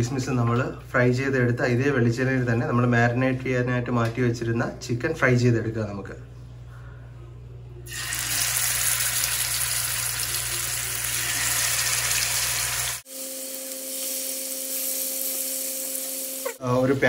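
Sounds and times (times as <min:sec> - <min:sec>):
steady low hum: 0:00.0 - 0:07.9
chicken sizzling in oil: 0:07.9 - 0:17.0.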